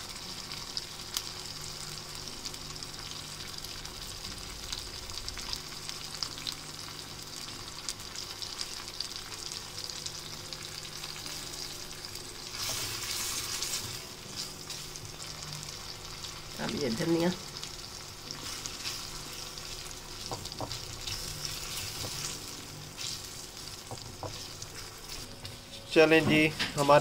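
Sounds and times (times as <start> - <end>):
masala sizzling in a wok: 0.0 - 27.0
wooden spatula stirring pan: 20.2 - 22.4, 23.0 - 27.0.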